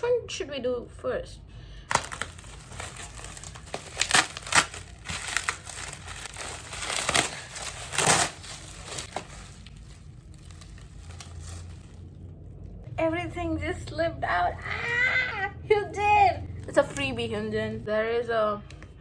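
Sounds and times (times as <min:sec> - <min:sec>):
packaging crinkling and tearing: 0:01.9 - 0:12.6.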